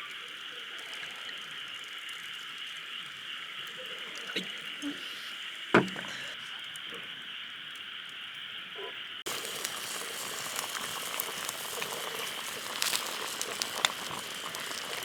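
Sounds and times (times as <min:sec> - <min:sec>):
food bubbling and sizzling: 0:00.0 - 0:15.0
fire crackling: 0:09.2 - 0:15.0.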